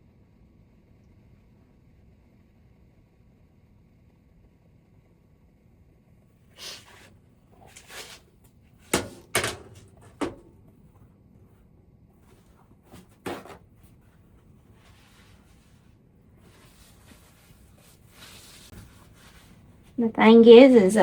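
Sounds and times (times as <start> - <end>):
soft scraping rustles: 6.8 - 8.4, 12.2 - 20.0.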